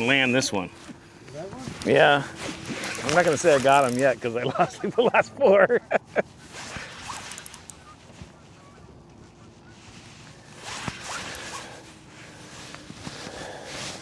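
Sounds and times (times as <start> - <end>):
fishing reel cranking: 1.7 - 4.3, 6.7 - 7.9, 11.0 - 11.8.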